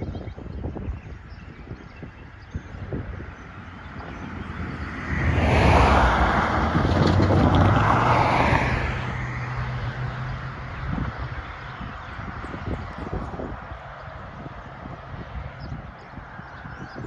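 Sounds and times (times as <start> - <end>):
vehicle passing: 3.1 - 10.6.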